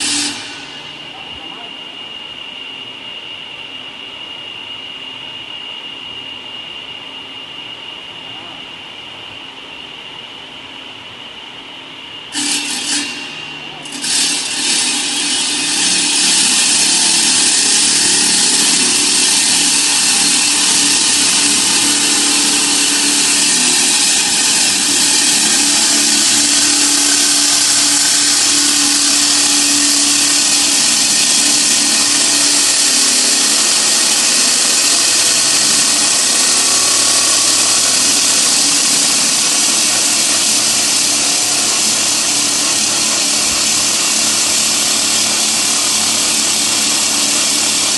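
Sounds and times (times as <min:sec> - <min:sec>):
concrete saw cutting concrete: 0:00.0 - 0:01.8, 0:12.3 - 0:47.9.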